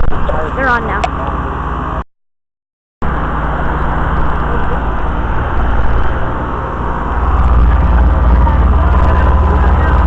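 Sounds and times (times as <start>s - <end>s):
compressors humming: 0.0s - 2.0s, 3.0s - 10.0s
condenser fans blowing: 3.1s - 10.0s.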